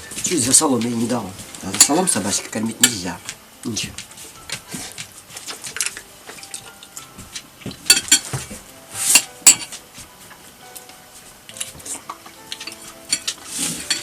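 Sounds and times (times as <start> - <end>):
cutlery clinking on dishes: 4.4 - 9.8, 11.5 - 14.0.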